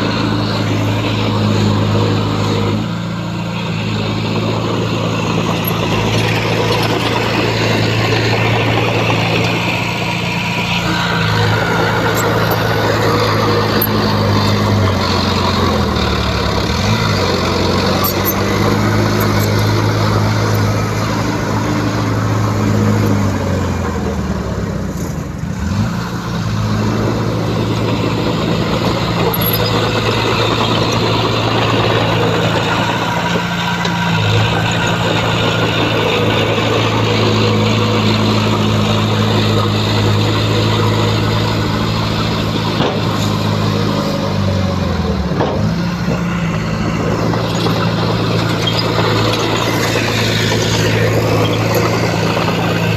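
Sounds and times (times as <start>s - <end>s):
bulldozer diesel engine running hard: 0.0s - 52.9s.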